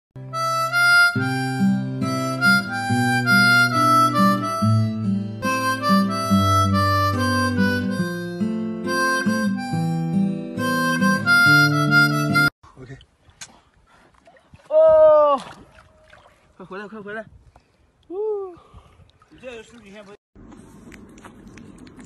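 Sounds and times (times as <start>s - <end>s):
harmonica playing chords: 0.2s - 12.5s.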